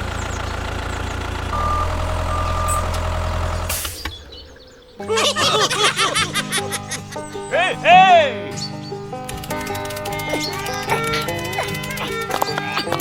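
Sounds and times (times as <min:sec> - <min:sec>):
tractor engine running: 0:00.0 - 0:04.9, 0:08.9 - 0:13.0
short beeps: 0:01.6 - 0:03.1
bouncy cartoon music: 0:05.0 - 0:08.6, 0:09.3 - 0:13.0.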